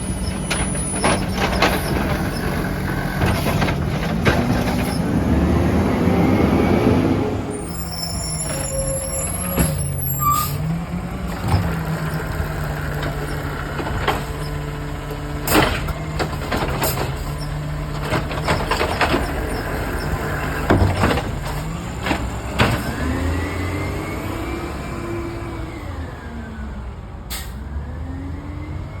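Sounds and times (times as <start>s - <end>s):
garbage truck engine running: 0.0s - 27.1s
clanks and knocks: 0.1s - 5.0s, 11.3s - 23.1s.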